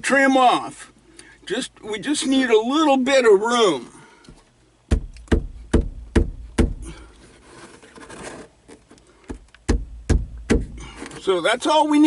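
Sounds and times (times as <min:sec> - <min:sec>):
sharp knocks on window trim: 0:04.9 - 0:06.9, 0:09.3 - 0:10.8
light scraping: 0:07.1 - 0:09.2.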